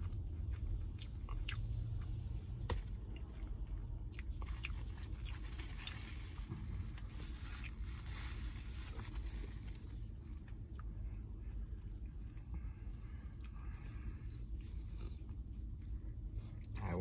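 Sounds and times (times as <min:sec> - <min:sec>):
crunchy chewing: 0:00.0 - 0:02.1, 0:03.0 - 0:08.0.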